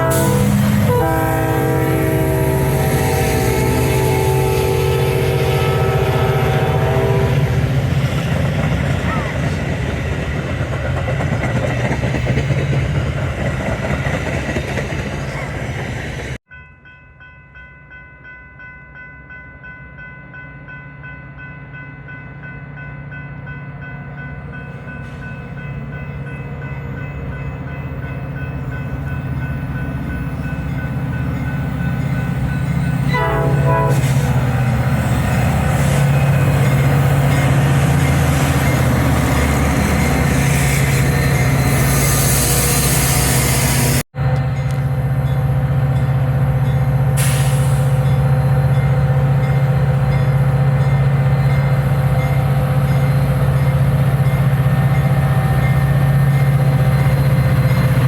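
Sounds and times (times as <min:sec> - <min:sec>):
horn blast: 0:00.0 - 0:07.7, 0:33.1 - 0:36.2
approaching train rumble: 0:00.0 - 0:16.4, 0:22.0 - 0:58.0
train running: 0:00.0 - 0:16.4, 0:21.7 - 0:58.0.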